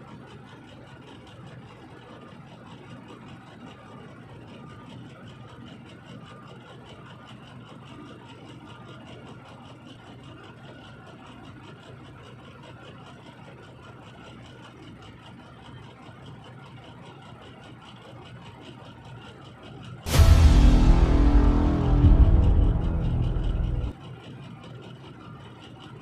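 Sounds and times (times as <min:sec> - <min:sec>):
vehicle engine running: 0:20.1 - 0:23.9.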